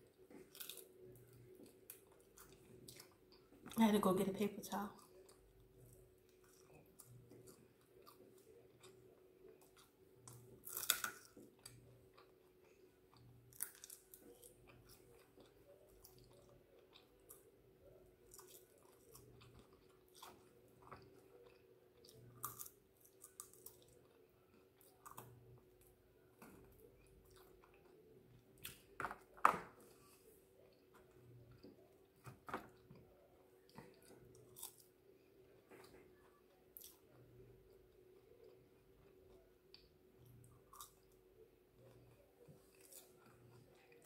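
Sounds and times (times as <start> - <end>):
faint steady hum: 0.0 - 44.0
chewing and biting: 5.0 - 25.5.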